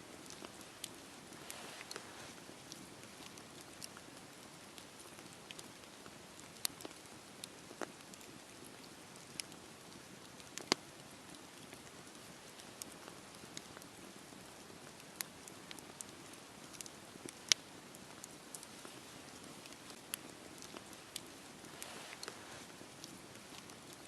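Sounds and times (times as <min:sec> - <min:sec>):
campfire crackling and popping: 0:00.0 - 0:24.0
fire hissing: 0:00.2 - 0:03.9, 0:18.8 - 0:23.8.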